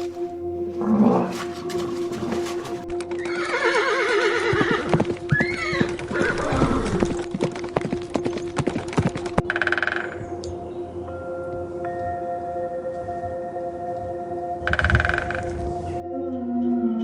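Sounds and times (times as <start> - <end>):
steady background tone: 0.0 - 17.0
hooves clip-clopping on hard surface: 1.3 - 10.2
horse whinnying: 3.2 - 7.2.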